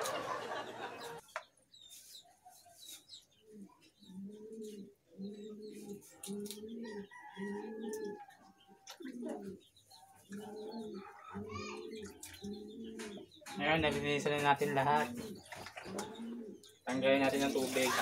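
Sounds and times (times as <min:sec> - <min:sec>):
bird cooing: 0:03.3 - 0:13.6, 0:14.9 - 0:16.8.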